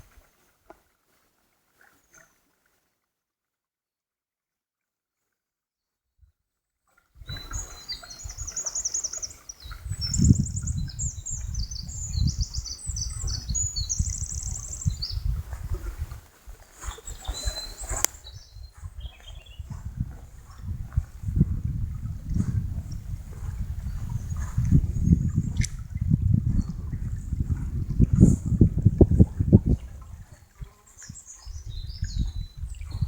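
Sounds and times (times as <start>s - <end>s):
songbirds singing: 7.2s - 15.3s, 16.9s - 20.0s, 21.9s - 28.2s, 30.7s - 33.0s
sharp click: 25.6s - 25.8s.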